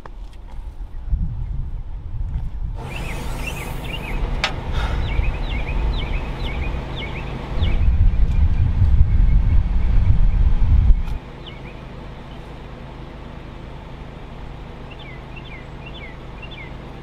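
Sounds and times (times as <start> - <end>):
low rumble: 0.8 - 11.2
bird chirping falling notes: 2.8 - 12.5.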